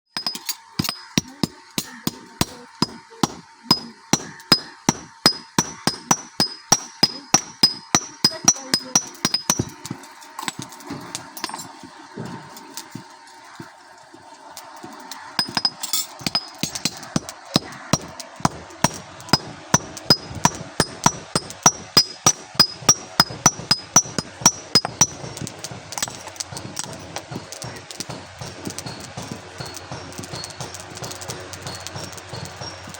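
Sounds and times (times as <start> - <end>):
hammer striking metal: 0.2 - 11.8, 15.4 - 32.9.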